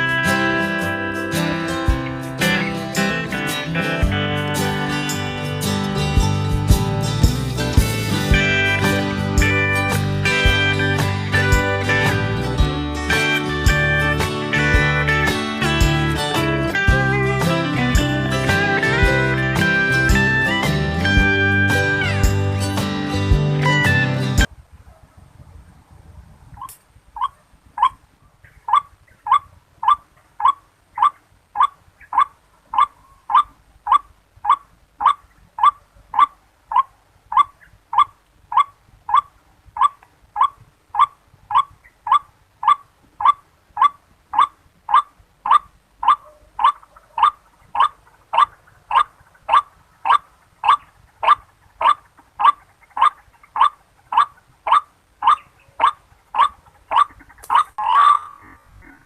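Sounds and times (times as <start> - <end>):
waterhen calls: 26.6 - 59.0.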